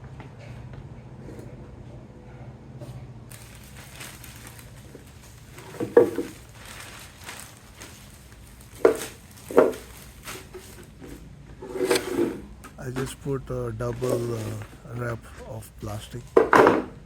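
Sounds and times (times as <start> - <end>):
plastic wrap crinkling: 3.3 - 11.0
plastic wrap crunching: 3.3 - 11.0.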